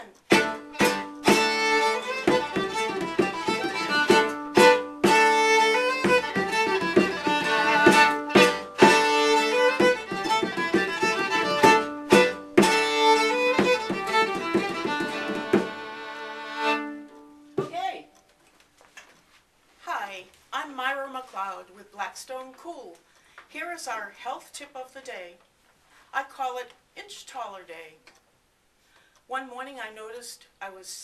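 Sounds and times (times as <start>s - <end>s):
strummed string accompaniment: 0.0s - 17.6s
fiddle folk tune: 0.3s - 17.4s.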